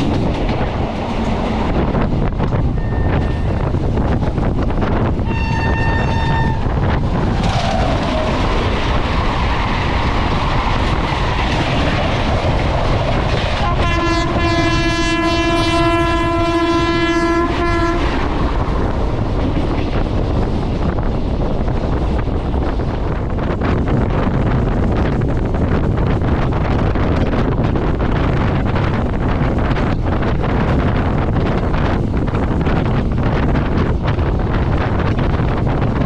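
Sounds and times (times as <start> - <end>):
wheels clattering over rails: 0.0 - 5.3
train passing at speed: 0.0 - 36.0
train horn blast: 5.2 - 6.9, 13.6 - 18.4.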